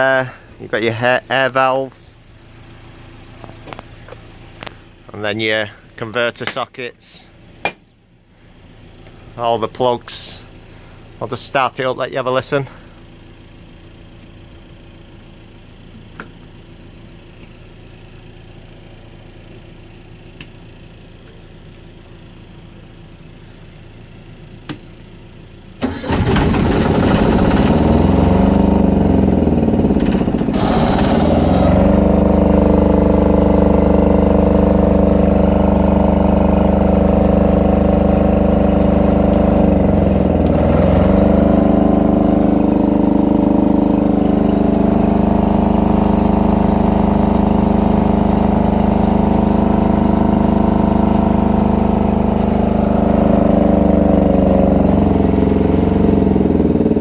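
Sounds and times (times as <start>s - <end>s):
engine starting and running: 12.4s - 57.0s.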